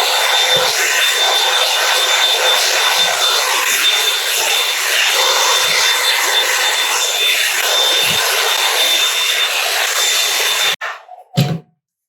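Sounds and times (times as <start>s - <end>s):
hot-air brush dryer running: 0.0s - 10.8s.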